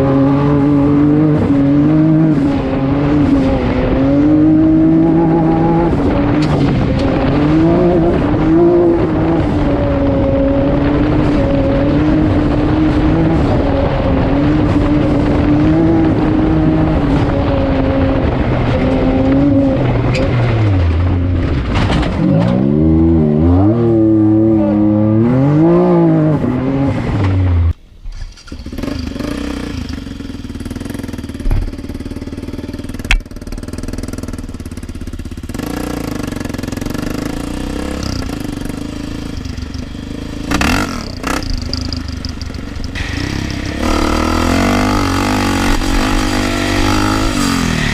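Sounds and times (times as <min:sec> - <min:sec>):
off-road vehicle engine revving: 0:00.0 - 0:27.8, 0:28.5 - 0:47.9
sharp clicks: 0:39.3 - 0:43.6.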